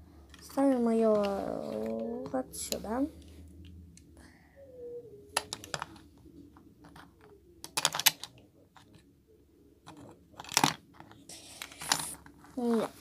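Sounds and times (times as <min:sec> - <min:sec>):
plastic bricks clicking: 0:06.8 - 0:08.4, 0:09.9 - 0:12.2.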